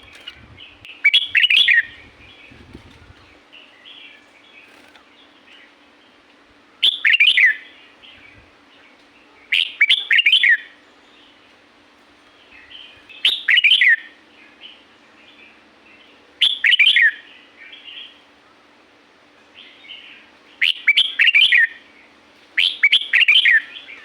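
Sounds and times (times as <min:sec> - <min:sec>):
bird warbling and chirping: 0:00.0 - 0:05.7
faint low hum: 0:00.0 - 0:06.9.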